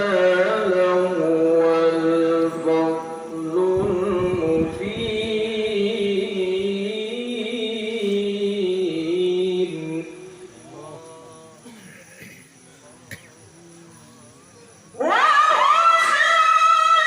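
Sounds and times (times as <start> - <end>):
man reciting in high register: 0.0 - 15.1.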